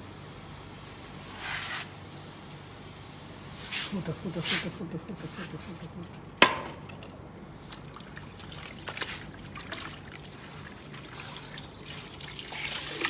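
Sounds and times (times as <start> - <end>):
water trickling: 7.6 - 13.0.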